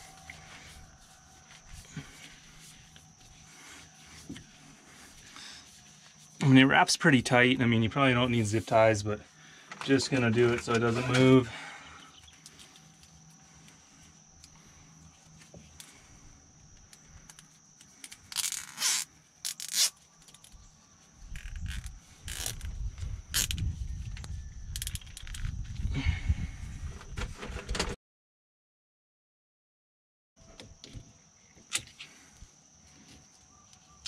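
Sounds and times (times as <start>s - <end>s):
zip ties ratcheting tight: 18.0s - 19.9s, 21.4s - 22.7s, 23.3s - 23.6s.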